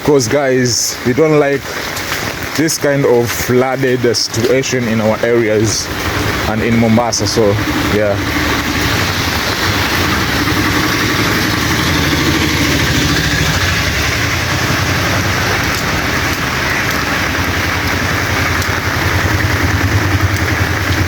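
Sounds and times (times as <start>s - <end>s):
rain hissing: 0.0s - 21.0s
running water: 0.0s - 21.0s
vehicle engine idling: 4.4s - 21.0s.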